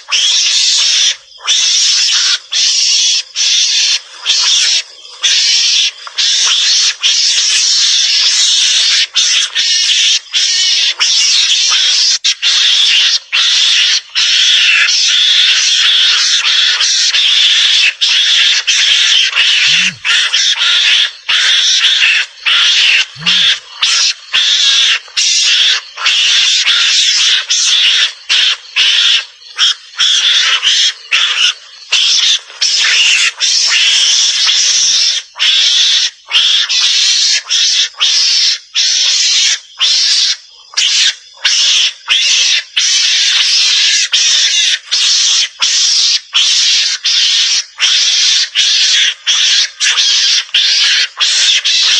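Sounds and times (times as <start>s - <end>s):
hissy chattering lure call: 17.6s - 36.2s.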